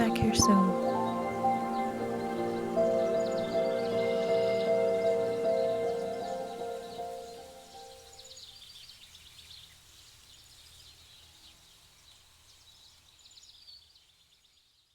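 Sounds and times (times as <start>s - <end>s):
soft sustained music: 0.0s - 8.5s
songbirds chirping and trilling: 0.0s - 14.7s.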